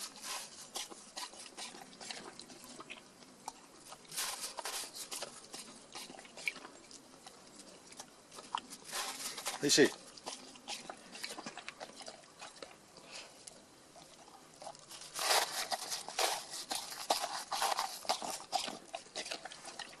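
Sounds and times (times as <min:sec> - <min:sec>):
dog crunching icy snow: 0:00.0 - 0:02.8, 0:03.8 - 0:06.6, 0:08.4 - 0:12.2, 0:14.8 - 0:20.0.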